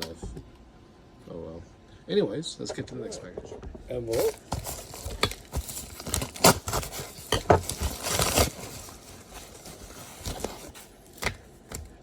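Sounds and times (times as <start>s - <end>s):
envelope rustle: 4.1s - 11.6s.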